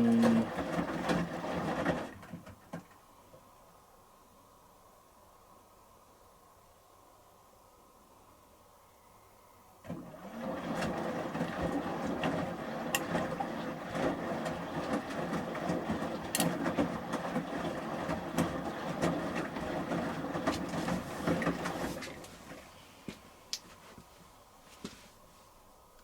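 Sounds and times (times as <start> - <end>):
wet laundry sloshing in drum: 0.0 - 2.8, 9.8 - 22.7.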